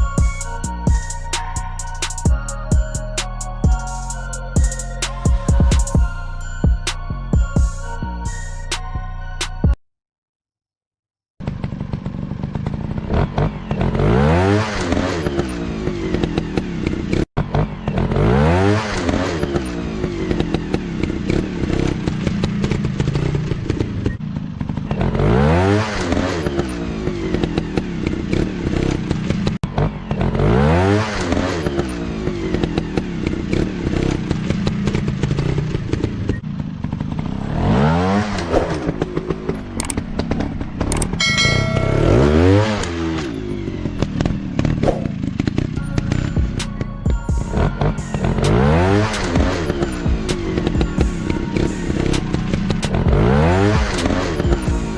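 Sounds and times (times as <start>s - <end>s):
dirt bike engine revving: 11.4s - 54.9s.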